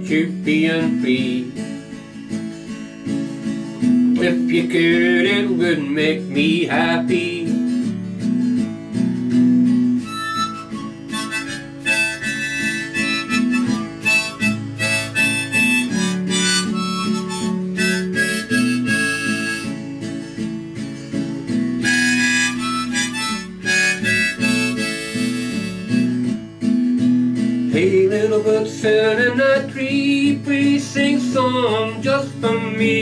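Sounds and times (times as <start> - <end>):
strummed acoustic guitar: 0.0 - 33.0
harmonica melody: 9.8 - 20.6, 21.5 - 26.4.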